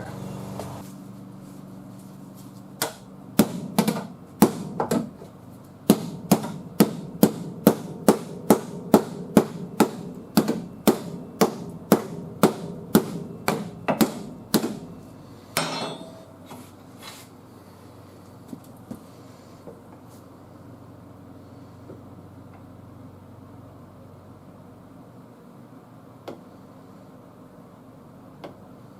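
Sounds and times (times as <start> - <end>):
hammer striking sheet metal: 5.9 - 14.9, 15.6 - 16.4.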